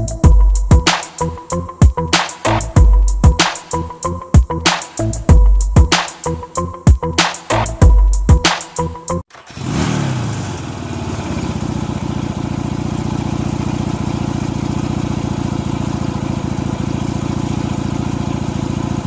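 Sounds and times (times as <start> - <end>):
motorcycle engine revving and idling: 9.3 - 19.0.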